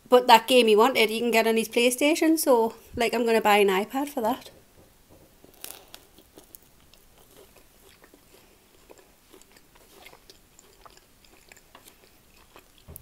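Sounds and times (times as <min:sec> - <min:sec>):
person chewing food: 0:05.4 - 0:13.0
soft crunches: 0:05.4 - 0:13.0.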